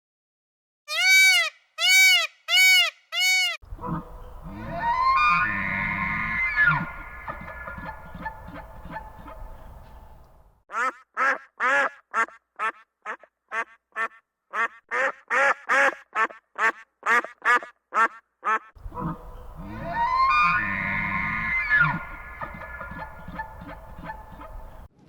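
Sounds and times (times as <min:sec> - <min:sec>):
animal calling in short calls: 0:02.6 - 0:24.9
steady pitched tones: 0:03.7 - 0:10.4, 0:18.8 - 0:24.9.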